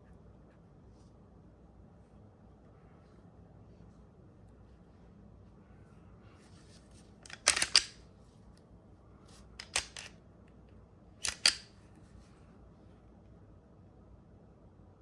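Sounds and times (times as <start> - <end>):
pistol mechanical clicks: 7.3 - 8.0, 11.2 - 11.7.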